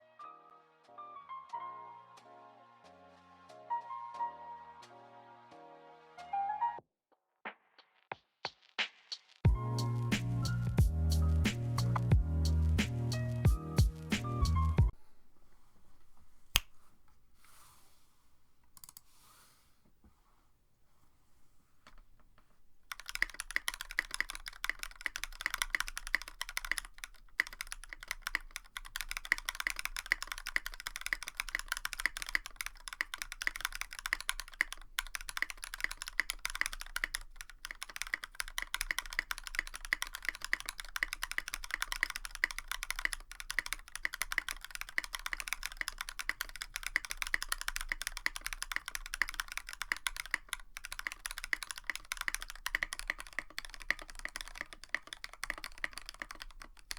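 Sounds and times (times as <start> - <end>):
mechanical keyboard typing: 22.8 - 56.9.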